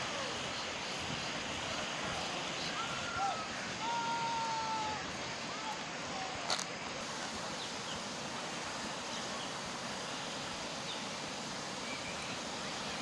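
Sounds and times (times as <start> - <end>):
river water rushing: 0.0 - 13.0
single click: 6.5 - 6.7.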